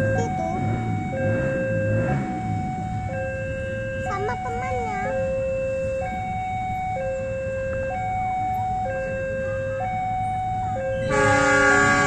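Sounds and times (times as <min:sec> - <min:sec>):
train horn chord: 0:11.0 - 0:12.0.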